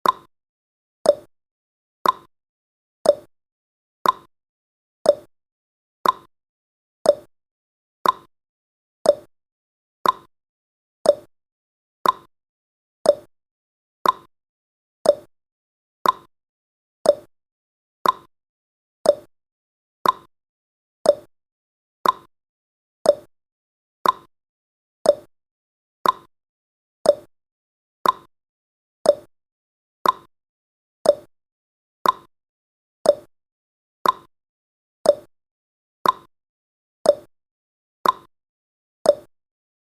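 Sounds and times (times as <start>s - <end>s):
clock ticking: 2.0s - 2.3s, 4.0s - 4.3s, 6.0s - 6.3s, 8.0s - 8.3s, 10.0s - 10.3s, 12.0s - 12.3s, 14.0s - 14.3s, 15.1s - 15.3s, 16.0s - 16.3s, 18.0s - 18.3s, 19.1s - 19.3s, 20.0s - 20.3s, 21.1s - 21.3s, 22.0s - 22.3s, 24.0s - 24.3s, 26.0s - 26.3s, 28.0s - 28.3s, 29.1s - 29.3s, 30.0s - 30.3s, 31.1s - 31.3s, 32.0s - 32.3s, 33.1s - 33.3s, 34.0s - 34.3s, 35.1s - 35.3s, 36.0s - 36.3s, 38.0s - 38.3s, 39.1s - 39.3s.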